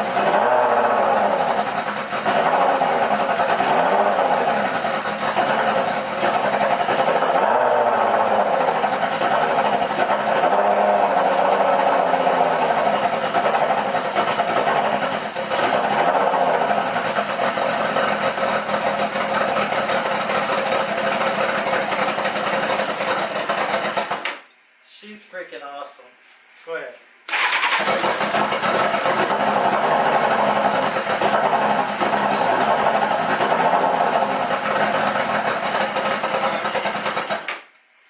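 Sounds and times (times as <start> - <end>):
motorcycle engine running: 0.0 - 24.3, 27.3 - 37.5.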